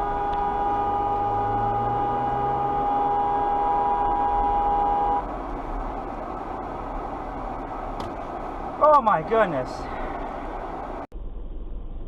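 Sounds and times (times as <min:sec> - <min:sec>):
car horn blast: 0:00.0 - 0:05.3
road noise: 0:00.0 - 0:12.0.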